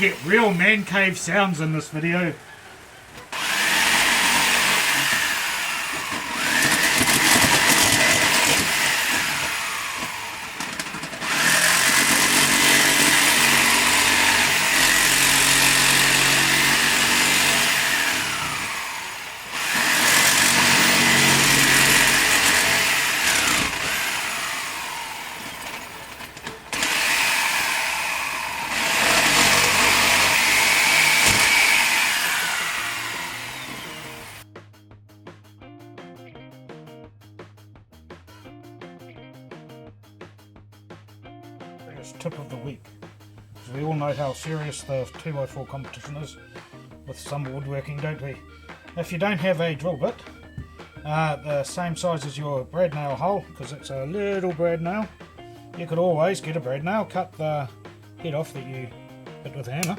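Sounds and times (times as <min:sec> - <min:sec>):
electric power tool spinning: 0:00.0 - 0:01.1, 0:03.2 - 0:34.4.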